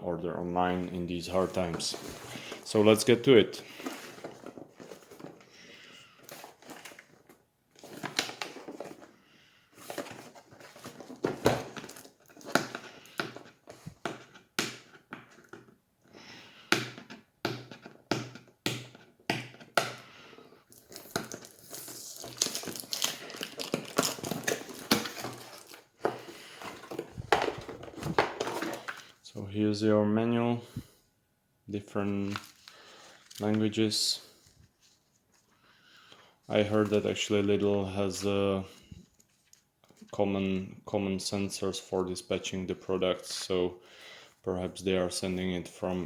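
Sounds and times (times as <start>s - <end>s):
packaging crinkling and rustling: 1.4s - 9.2s, 9.8s - 14.0s, 20.7s - 29.2s, 32.1s - 33.8s.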